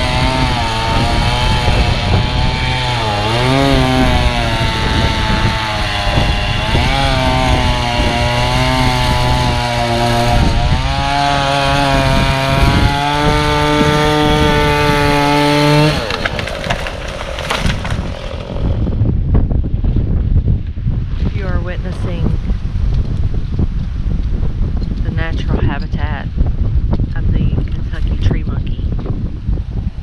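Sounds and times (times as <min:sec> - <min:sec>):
chainsaw engine running: 0:00.0 - 0:19.0
wind buffeting microphone: 0:00.0 - 0:30.0.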